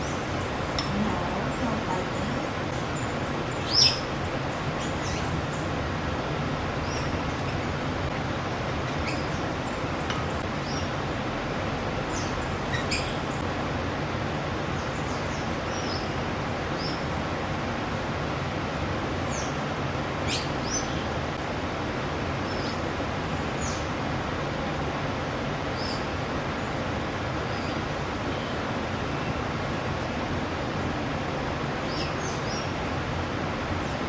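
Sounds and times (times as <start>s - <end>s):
birds chirping: 0.0s - 11.3s, 12.0s - 13.5s
background hiss and rumble: 0.0s - 34.0s.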